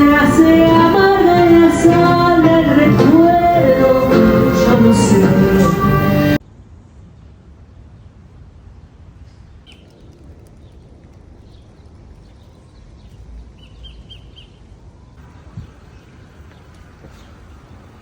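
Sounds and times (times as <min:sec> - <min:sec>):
distant traffic: 0:00.0 - 0:18.0
wind: 0:06.4 - 0:18.0
small bird chirping: 0:09.6 - 0:10.8, 0:11.4 - 0:14.6.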